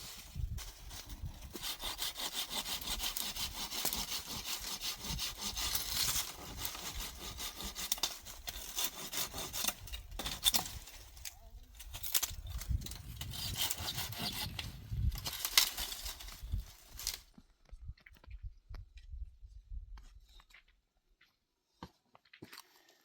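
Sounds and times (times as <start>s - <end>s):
hand saw cutting wood: 0.0s - 11.2s, 11.8s - 17.2s.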